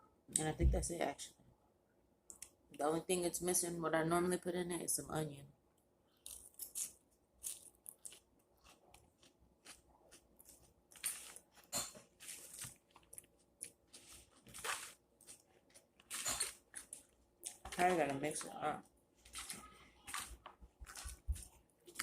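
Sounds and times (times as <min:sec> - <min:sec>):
crisp crunches and chewing: 0:06.2 - 0:17.8, 0:19.2 - 0:22.0.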